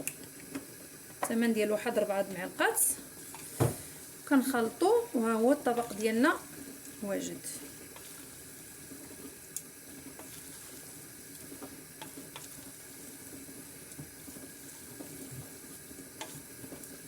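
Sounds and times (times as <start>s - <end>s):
spoon stirring wet food: 4.7s - 17.0s.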